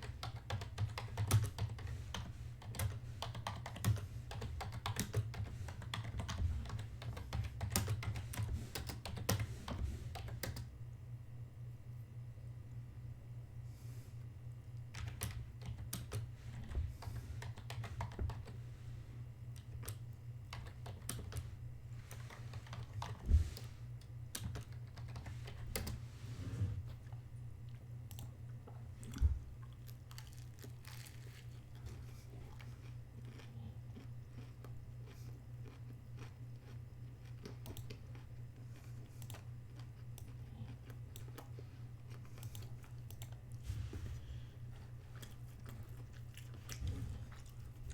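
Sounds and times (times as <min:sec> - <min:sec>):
steady low hum: 0:00.0 - 0:47.9
chewing and crunching food: 0:26.9 - 0:47.9.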